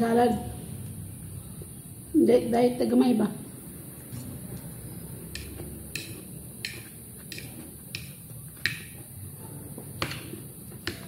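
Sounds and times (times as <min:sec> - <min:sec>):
fork clicking on plate: 0:05.4 - 0:08.9.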